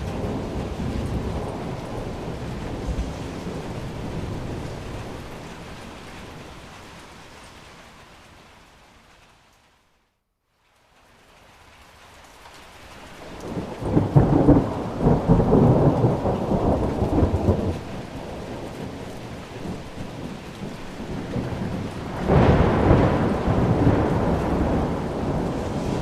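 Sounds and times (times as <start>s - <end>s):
thunder rolling: 0.0s - 6.9s, 13.3s - 26.0s
steady rain: 0.0s - 26.0s.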